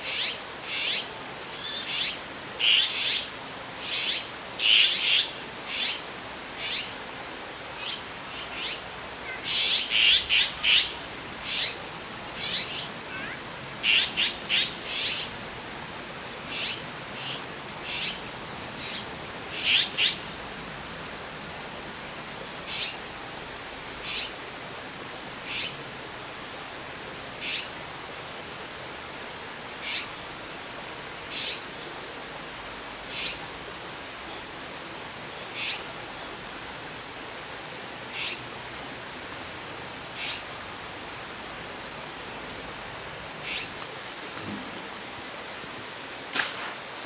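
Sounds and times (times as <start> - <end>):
fledglings calling: 0.0 - 7.0, 7.8 - 15.3, 16.5 - 18.2, 27.4 - 27.7, 29.8 - 30.2, 31.3 - 31.7, 35.5 - 35.9, 38.1 - 38.4, 40.2 - 40.5, 43.4 - 45.5
steady background hiss: 0.0 - 47.0.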